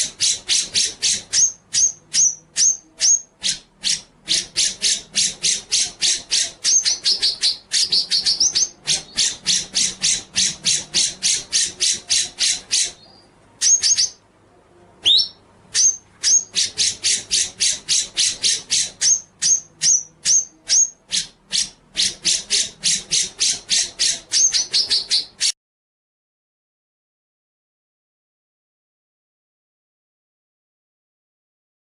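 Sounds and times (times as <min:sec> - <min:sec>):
songbird singing: 0:00.0 - 0:14.3, 0:15.0 - 0:25.6.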